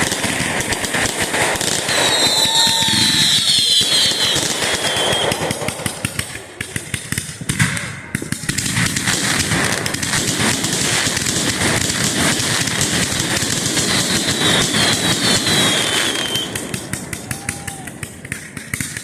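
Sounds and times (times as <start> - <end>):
loud firework bang: 0.0 - 18.9
fireworks crackling: 0.0 - 19.0.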